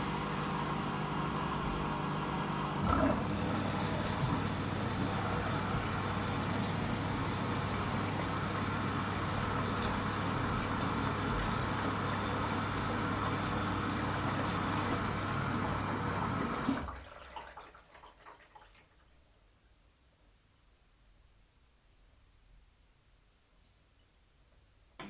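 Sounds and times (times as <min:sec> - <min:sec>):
washing machine water rushing: 0:00.0 - 0:19.0
water trickles and drips: 0:04.0 - 0:15.9.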